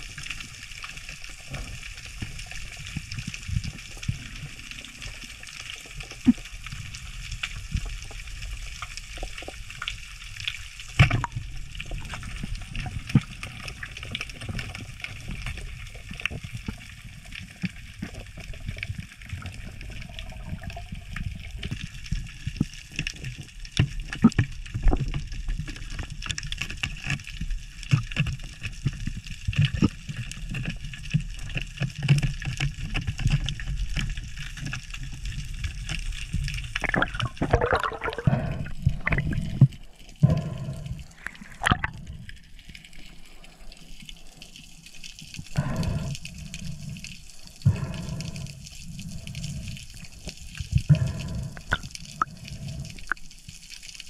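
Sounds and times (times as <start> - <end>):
water sloshing and gurgling: 0.0 - 54.0
falling gurgling sweeps: 36.8 - 42.3.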